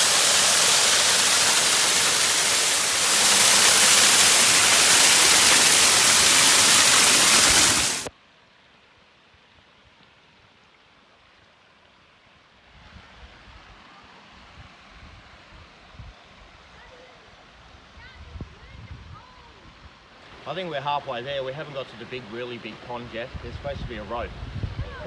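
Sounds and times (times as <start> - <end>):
waterfall rushing: 0.0 - 8.1.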